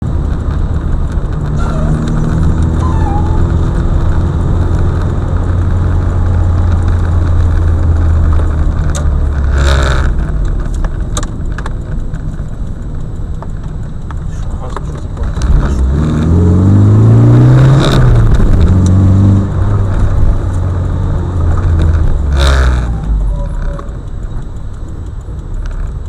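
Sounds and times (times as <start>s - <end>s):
vehicle engine and tyres droning: 0.0s - 26.0s
clicks: 18.1s - 26.0s.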